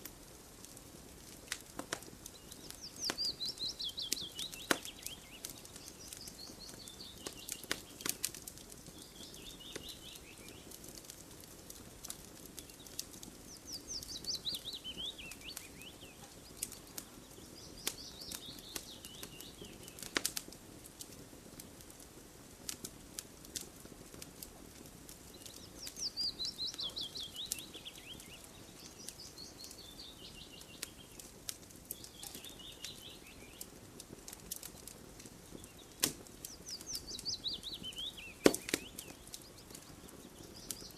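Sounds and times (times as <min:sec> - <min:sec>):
wood fire crackling: 0:00.0 - 0:40.9
songbird trilling: 0:02.4 - 0:07.6, 0:13.6 - 0:16.2, 0:25.5 - 0:31.0, 0:36.5 - 0:39.2.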